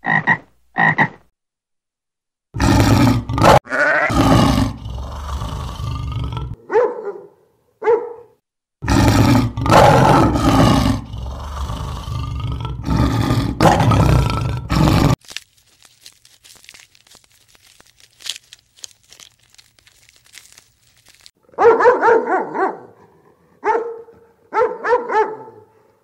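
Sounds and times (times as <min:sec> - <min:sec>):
animal roaring and growling: 0:02.6 - 0:06.6, 0:08.8 - 0:15.2.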